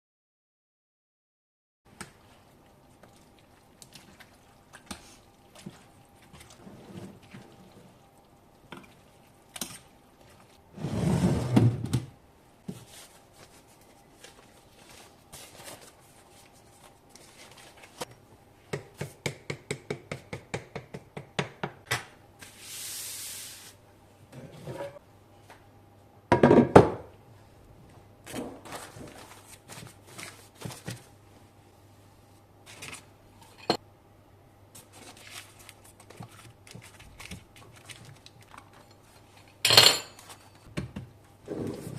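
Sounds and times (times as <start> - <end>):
utensils and dishes clinking: 33.4 - 33.8, 38.6 - 40.7.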